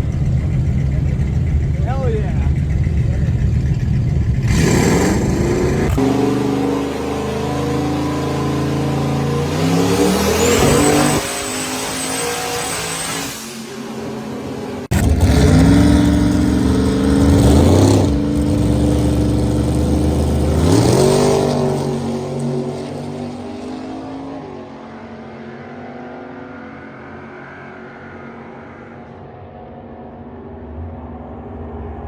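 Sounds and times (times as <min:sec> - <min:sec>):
hot rod engine revving: 0:00.0 - 0:24.2.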